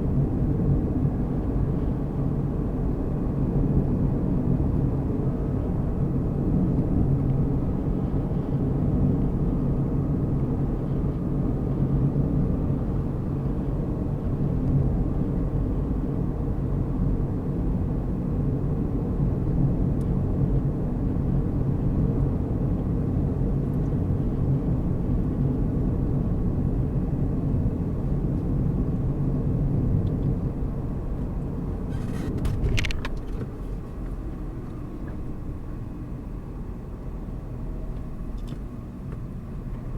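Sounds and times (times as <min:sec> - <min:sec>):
car engine hum: 0:00.0 - 0:39.9
tyre and road noise: 0:31.3 - 0:35.8.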